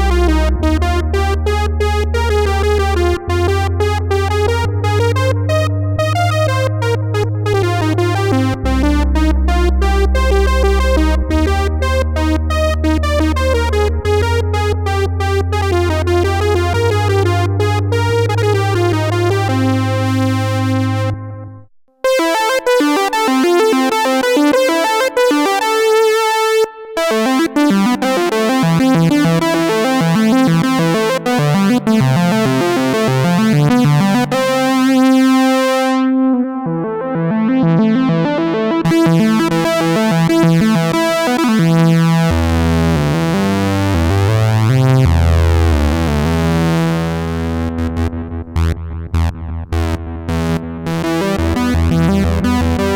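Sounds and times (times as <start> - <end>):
low bass notes: 0.0 - 21.7, 27.0 - 52.9
synthesizer lead melody: 0.0 - 52.9.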